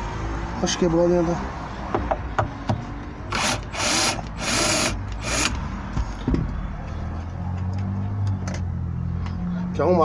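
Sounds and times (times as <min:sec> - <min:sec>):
cordless screwdriver running: 0:03.3 - 0:05.6.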